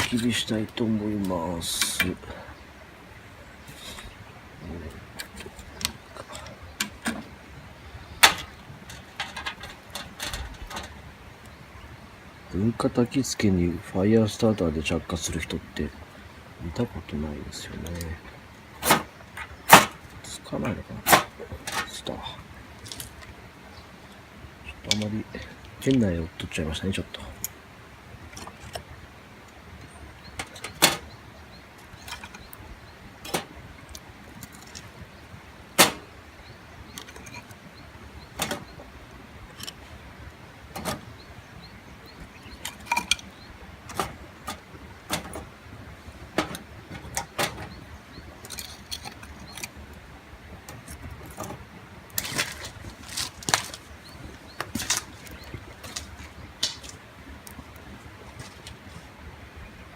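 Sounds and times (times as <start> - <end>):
campfire snapping and clicking: 4.8 - 7.3, 8.1 - 11.6, 17.8 - 26.2, 27.1 - 58.9.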